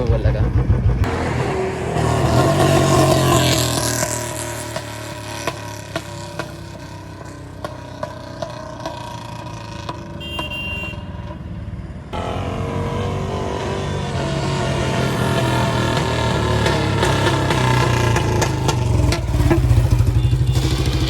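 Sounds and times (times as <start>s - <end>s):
motorcycle engine running: 15.0s - 21.0s.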